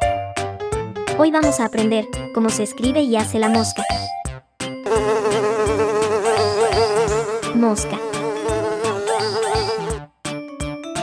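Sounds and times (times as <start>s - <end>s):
housefly buzzing: 4.9s - 10.0s.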